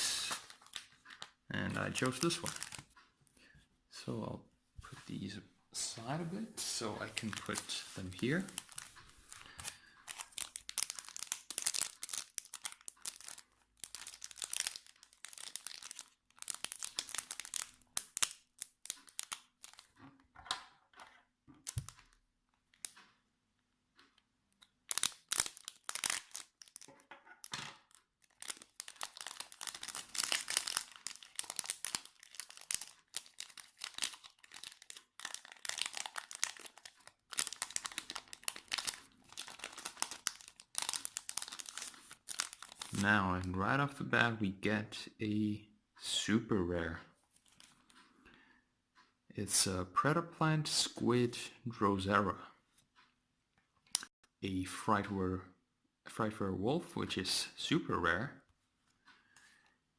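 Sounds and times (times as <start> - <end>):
foil wrapper crinkling and tearing: 0.0 - 2.9, 7.0 - 19.9, 24.9 - 26.9, 27.8 - 43.0.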